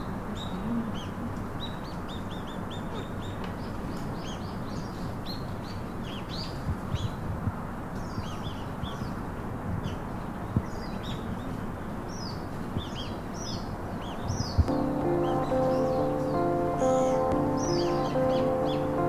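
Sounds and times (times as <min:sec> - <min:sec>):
low background hiss: 0:03.6 - 0:19.0
birds chirping: 0:09.9 - 0:19.0.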